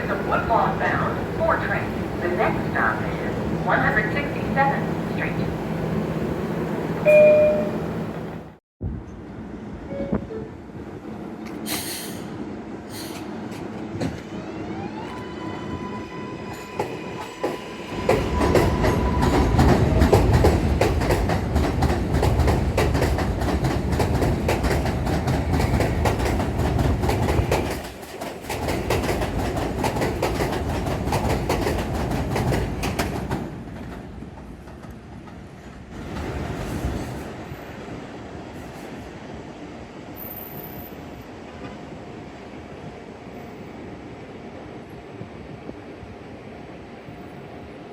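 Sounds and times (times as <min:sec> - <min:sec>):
subway train propulsion whine: 0:00.0 - 0:27.5, 0:29.1 - 0:47.9
train wheels running on rails: 0:16.3 - 0:42.1
rapid rail clicks: 0:19.4 - 0:35.4.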